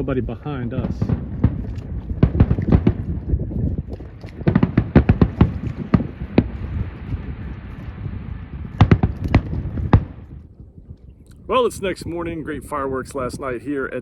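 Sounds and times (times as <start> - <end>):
fireworks bangs and crackles: 0.0 - 10.5.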